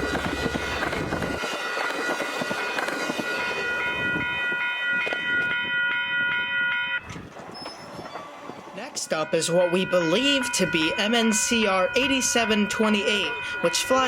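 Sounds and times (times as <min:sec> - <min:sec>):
train wheels clattering over rails: 0:00.0 - 0:03.8
high ringing from rails: 0:00.0 - 0:14.0.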